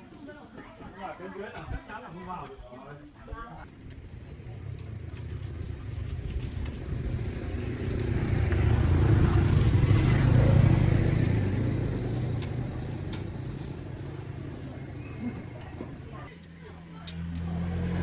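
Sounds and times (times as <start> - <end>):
vehicle driving past: 3.6 - 16.3, 16.9 - 18.0.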